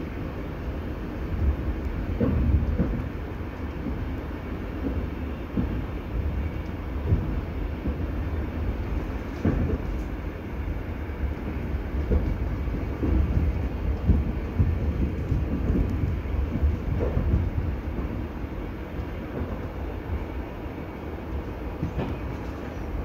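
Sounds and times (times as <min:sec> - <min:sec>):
train rumble from inside: 0:00.0 - 0:23.0
wheels knocking on track: 0:12.0 - 0:18.2.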